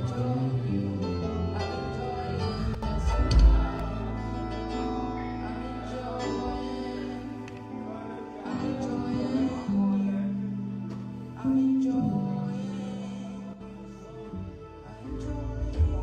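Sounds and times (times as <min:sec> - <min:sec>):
music with sustained notes: 0:00.0 - 0:16.0
plucked string: 0:01.2 - 0:13.2.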